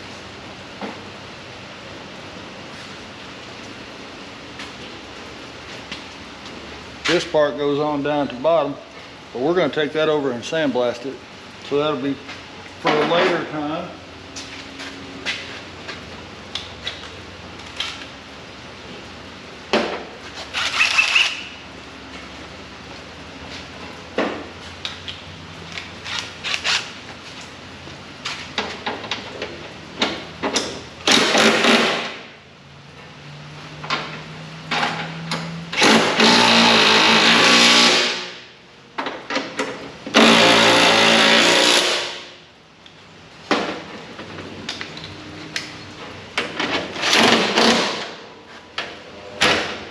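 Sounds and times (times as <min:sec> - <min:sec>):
power tool running: 0:35.7 - 0:38.4, 0:40.1 - 0:42.3.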